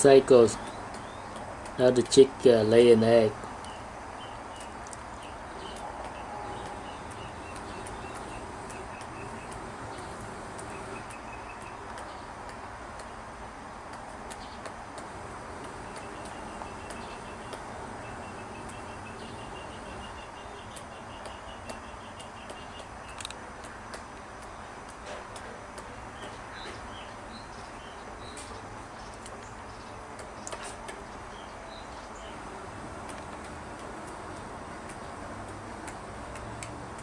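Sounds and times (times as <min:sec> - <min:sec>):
background hiss: 0:00.0 - 0:37.0
chicken beak pecking: 0:04.5 - 0:13.1.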